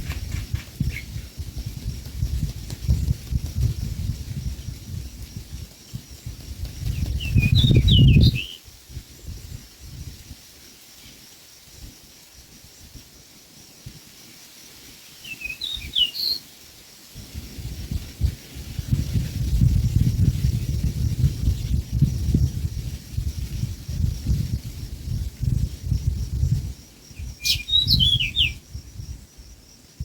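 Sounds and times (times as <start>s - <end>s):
small bird chirping: 0.0s - 1.3s, 6.8s - 8.6s, 15.2s - 16.4s, 27.1s - 28.7s.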